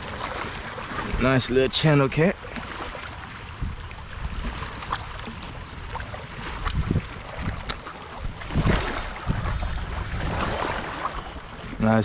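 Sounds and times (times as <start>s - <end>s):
wind buffeting microphone: 3.2s - 12.0s
microphone handling clicks: 7.5s - 8.0s.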